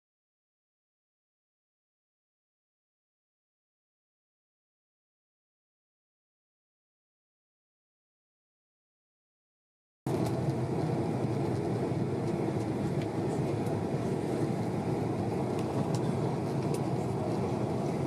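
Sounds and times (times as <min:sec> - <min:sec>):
airliner cabin engine and airflow noise: 0:10.1 - 0:18.0.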